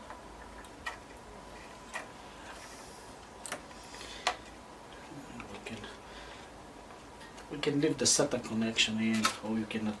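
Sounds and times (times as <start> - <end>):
computer parts clicking and knocking: 0.0 - 1.2.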